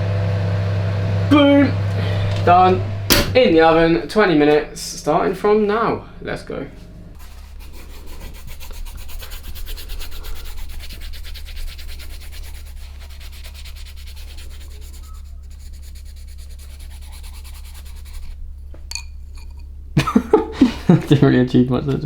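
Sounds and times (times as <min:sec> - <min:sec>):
scribbling on paper: 0:07.2 - 0:18.4.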